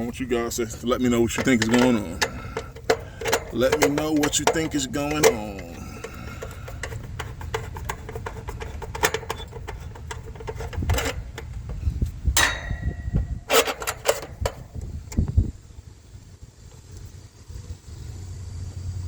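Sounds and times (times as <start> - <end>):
metal panel clanking: 0.0 - 15.4
low background rumble: 0.0 - 19.0
nut driver clicks and taps: 1.3 - 11.8.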